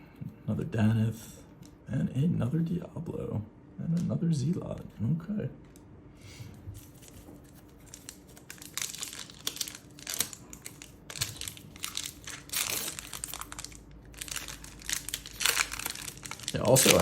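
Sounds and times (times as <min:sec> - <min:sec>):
foil wrapper crinkling and tearing: 0:06.8 - 0:17.0.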